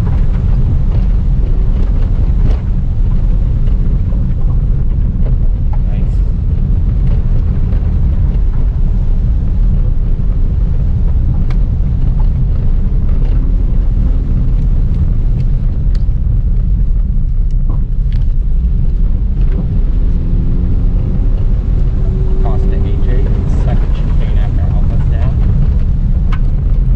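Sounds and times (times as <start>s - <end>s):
car engine under load: 0.0s - 26.9s
tyres rumbling on gravel: 0.0s - 26.9s.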